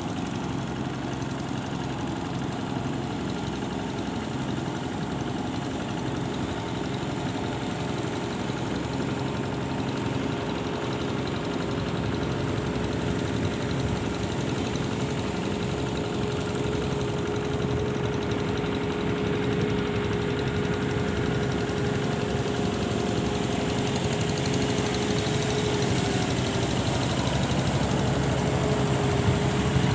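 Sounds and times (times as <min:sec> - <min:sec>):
engine humming steadily: 0:00.0 - 0:29.9.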